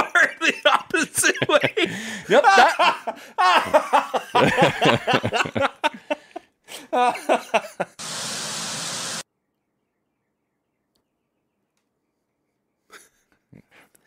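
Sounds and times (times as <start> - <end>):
people talking: 0.0 - 5.7
people laughing: 0.0 - 8.0
steady noise hiss: 8.0 - 9.2.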